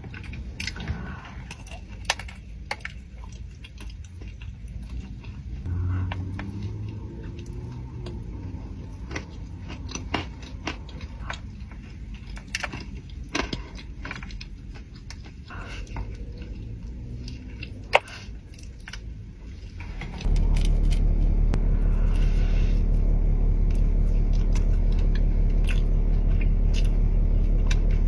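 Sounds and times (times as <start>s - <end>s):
low steady rumble: 0.0s - 28.0s
person chewing: 0.0s - 28.0s.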